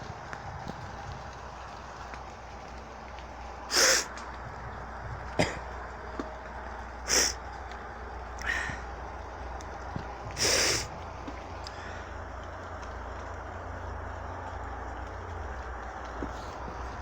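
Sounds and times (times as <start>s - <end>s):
heavy rain hiss: 0.0s - 17.0s
sharp hissing bursts: 3.7s - 4.2s, 7.1s - 7.4s, 10.4s - 11.0s.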